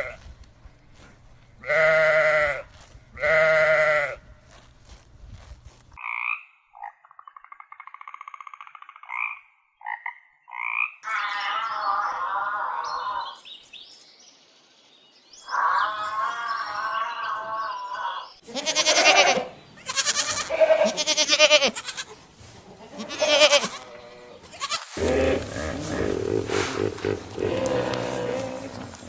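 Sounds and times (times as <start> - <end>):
harsh animal calls: 15.5 - 22.2, 22.8 - 29.0
wavering animal call: 23.0 - 29.0.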